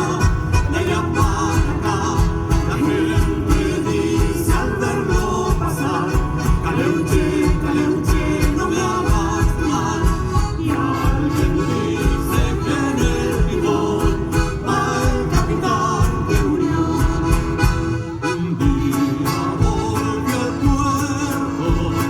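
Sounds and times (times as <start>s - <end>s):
folk music with singing: 0.0s - 22.0s.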